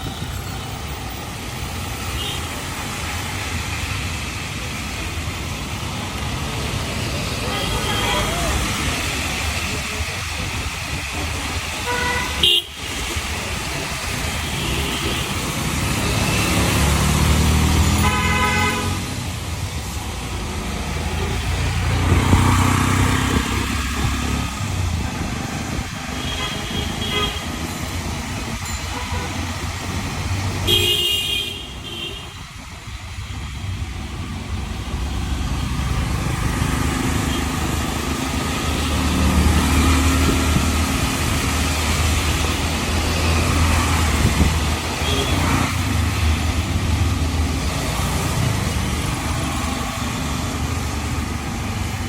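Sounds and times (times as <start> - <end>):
street traffic rumble: 0.0 - 52.0
vehicle horn honks: 11.9 - 12.7, 18.0 - 19.0, 30.7 - 32.4.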